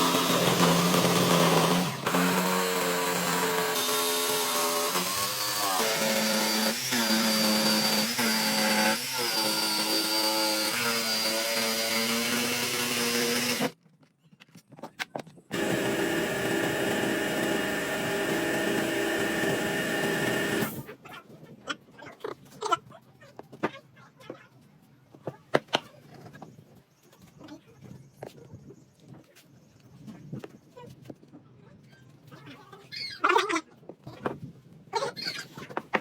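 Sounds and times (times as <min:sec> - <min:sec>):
power tool motor whining: 0:00.0 - 0:13.8, 0:15.5 - 0:20.8.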